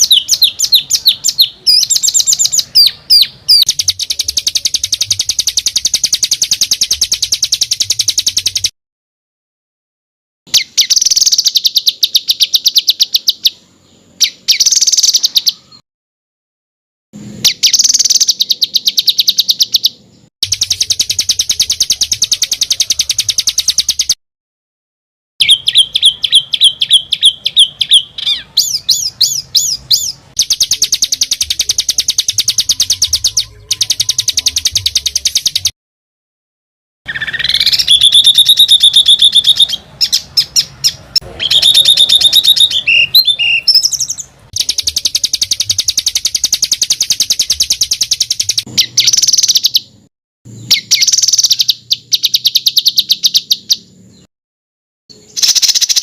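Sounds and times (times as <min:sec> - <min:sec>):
songbird rattling trills: 0:00.0 - 0:08.7, 0:17.5 - 0:24.2, 0:25.4 - 0:35.7, 0:37.1 - 0:49.9, 0:50.6 - 0:53.9, 0:55.4 - 0:56.0
sweeping whistled bird notes: 0:00.0 - 0:08.7, 0:17.4 - 0:24.2, 0:25.4 - 0:35.7, 0:37.1 - 0:49.9, 0:50.5 - 0:53.9.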